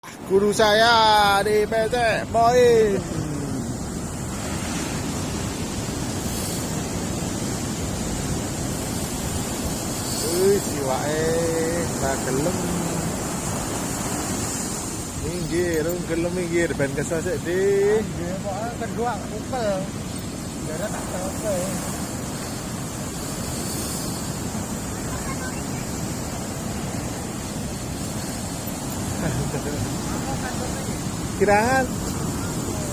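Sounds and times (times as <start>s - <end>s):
ocean surf on a beach: 0.0s - 32.9s
wind on microphone: 2.2s - 17.2s.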